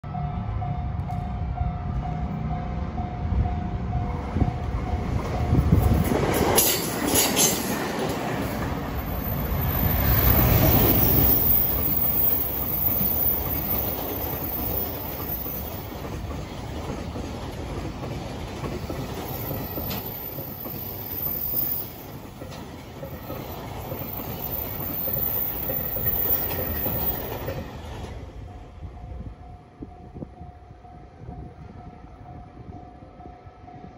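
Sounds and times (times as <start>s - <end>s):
freight train passing: 0.0s - 33.9s
wheels clattering over rail joints: 5.2s - 28.2s.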